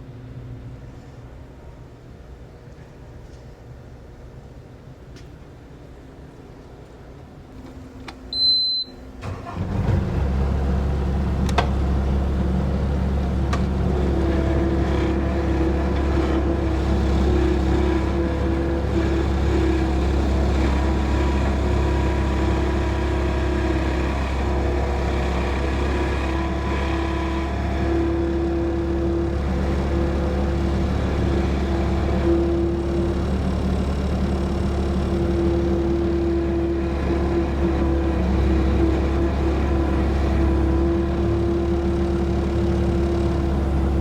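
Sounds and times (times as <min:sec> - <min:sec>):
short high beep: 0:08.3 - 0:09.0.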